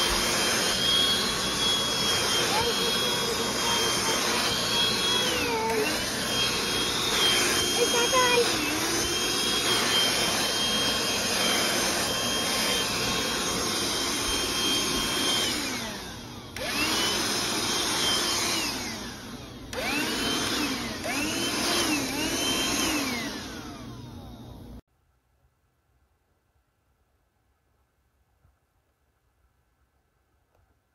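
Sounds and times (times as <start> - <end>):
handheld vacuum motor whine: 0.0 - 24.8.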